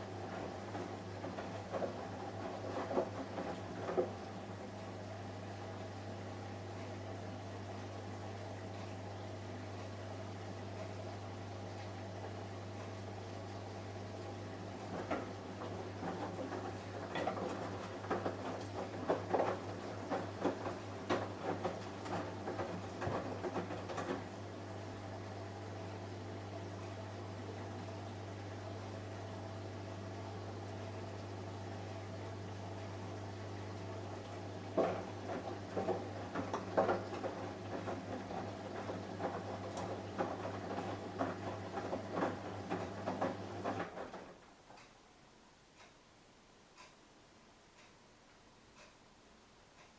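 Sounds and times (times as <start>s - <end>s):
laundry tumbling and splashing: 0.0s - 4.7s, 14.2s - 25.3s, 33.6s - 44.4s
washing machine motor hum: 0.0s - 44.8s.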